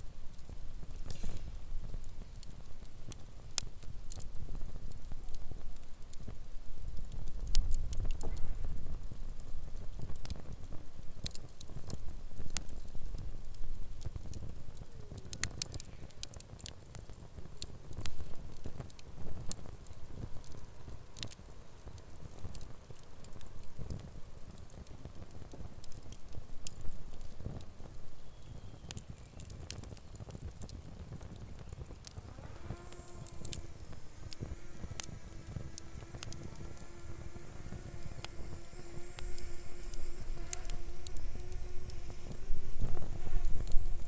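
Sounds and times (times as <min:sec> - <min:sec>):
campfire crackling and popping: 0:00.0 - 0:44.0.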